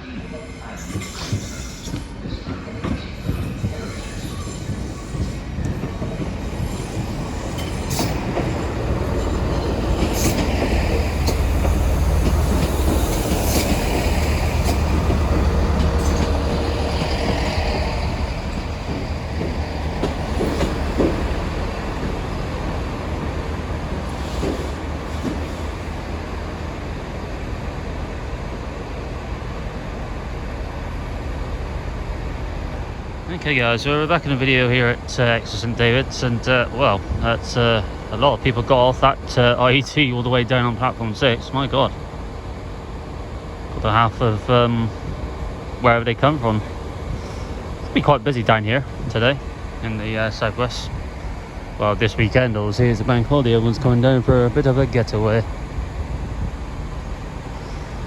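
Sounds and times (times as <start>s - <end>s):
train engine and wheel rumble: 0.0s - 58.0s
high-pitched brake squeals: 0.4s - 2.1s, 3.3s - 5.8s.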